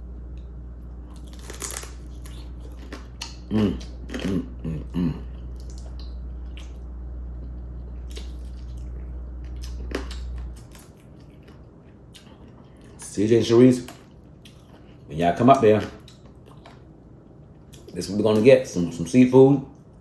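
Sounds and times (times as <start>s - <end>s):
low hum: 0.0s - 18.2s
chewing and wet mouth sounds: 0.3s - 13.2s, 13.8s - 18.5s
shell crunching: 1.2s - 3.0s.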